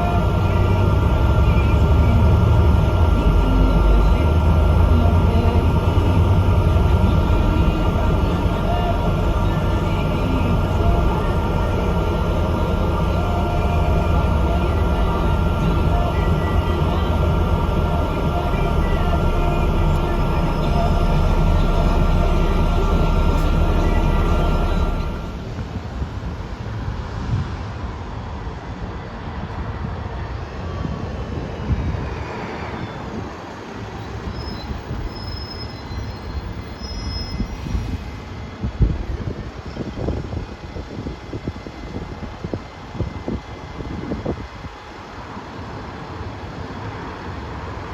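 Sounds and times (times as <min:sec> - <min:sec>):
faint whine: 0:00.0 - 0:27.0
bus engine and road rumble: 0:00.0 - 0:47.9.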